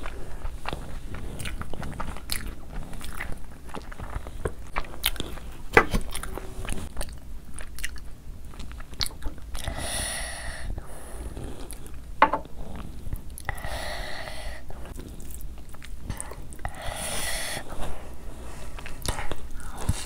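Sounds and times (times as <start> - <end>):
person chewing food: 0.0 - 9.8, 14.6 - 20.0
breaths through the nose: 16.1 - 20.0.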